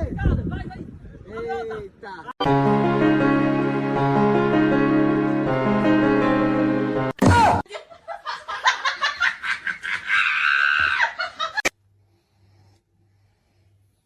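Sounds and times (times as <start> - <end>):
soft keyboard music: 2.4 - 7.6.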